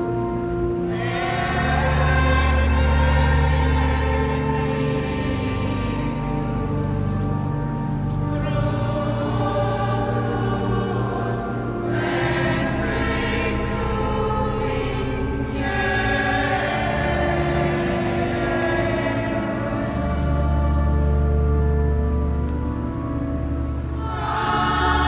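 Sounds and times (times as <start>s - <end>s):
choir singing: 0.0s - 22.5s, 23.6s - 25.0s.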